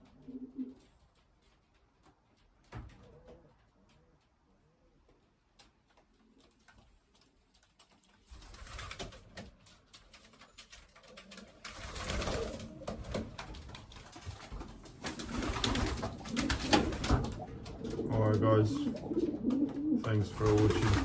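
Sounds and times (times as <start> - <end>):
pigeons cooing: 0.0 - 0.9, 11.0 - 21.0
rustling and knocking: 12.4 - 19.8.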